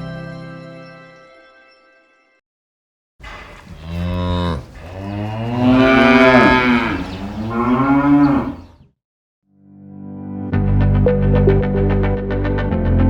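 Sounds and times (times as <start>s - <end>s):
cow mooing: 3.2s - 8.8s.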